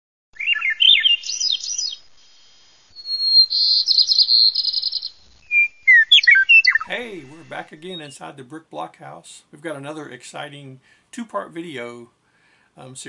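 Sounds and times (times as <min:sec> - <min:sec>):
songbird singing: 0:00.4 - 0:08.5.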